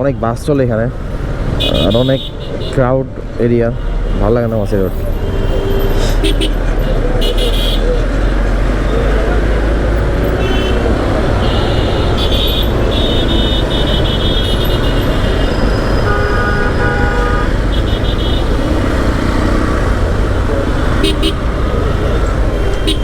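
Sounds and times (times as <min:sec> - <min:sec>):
motorcycle road and wind noise: 0:00.0 - 0:05.2, 0:06.1 - 0:23.0
low vehicle horn: 0:01.6 - 0:02.8, 0:04.9 - 0:08.0, 0:10.2 - 0:20.1, 0:20.8 - 0:23.0
high-pitched horn toots: 0:10.3 - 0:18.6.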